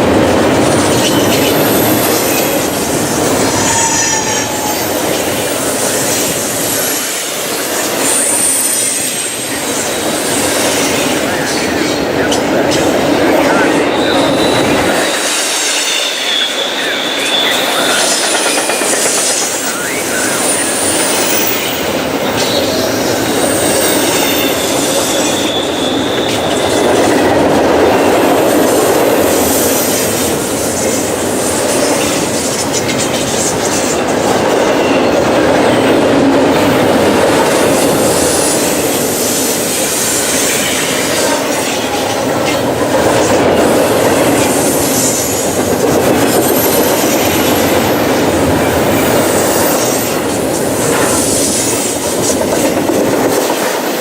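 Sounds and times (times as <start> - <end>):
freight train cars rolling past: 0.0 - 54.0
high-pitched wheel squeals: 3.4 - 5.3, 23.4 - 26.8.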